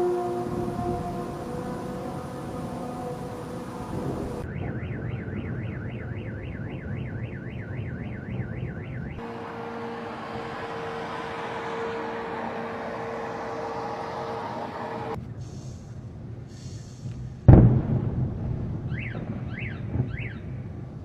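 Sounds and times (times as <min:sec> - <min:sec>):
low rumble: 0:00.0 - 0:05.4
electronic warbling siren: 0:00.0 - 0:15.2
street noise with steady hum: 0:00.0 - 0:21.0.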